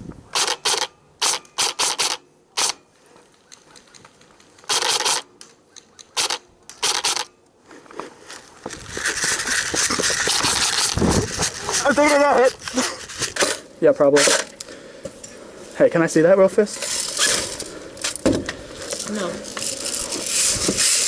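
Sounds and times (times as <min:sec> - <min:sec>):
airsoft gun shots: 0:00.3 - 0:02.8.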